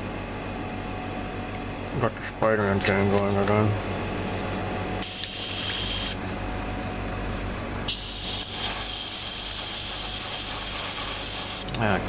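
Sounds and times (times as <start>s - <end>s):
airbrush spraying hiss: 7.9s - 11.6s.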